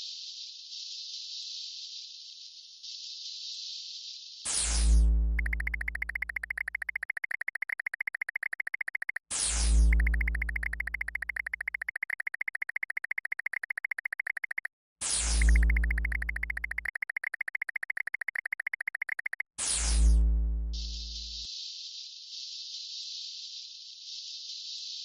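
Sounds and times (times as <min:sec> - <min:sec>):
rapid pulsing buzz: 0:05.4 - 0:09.2, 0:09.8 - 0:14.7, 0:15.4 - 0:19.4.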